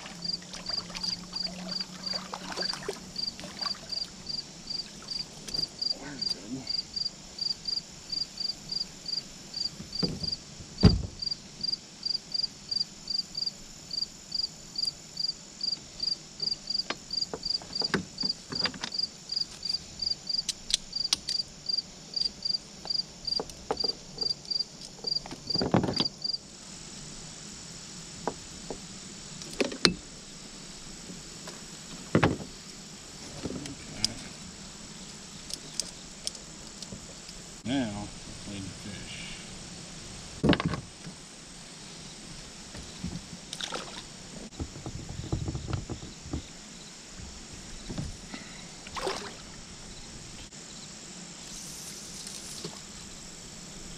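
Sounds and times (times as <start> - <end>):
cricket chirping: 0.0 - 53.9
high insect drone: 0.0 - 53.9
knocks and thumps: 9.8 - 11.2, 25.1 - 26.1, 32.0 - 32.6, 40.4 - 40.9, 44.5 - 46.6.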